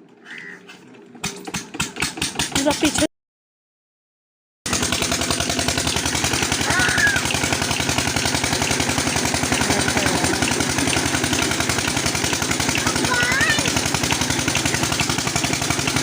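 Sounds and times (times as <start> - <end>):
diesel engine running: 4.7 - 16.0.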